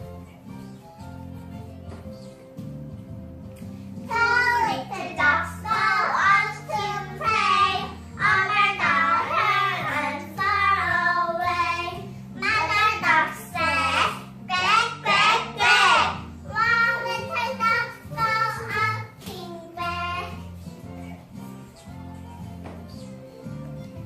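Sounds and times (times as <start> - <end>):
backing music: 0.0 - 24.0
child singing: 4.1 - 20.5.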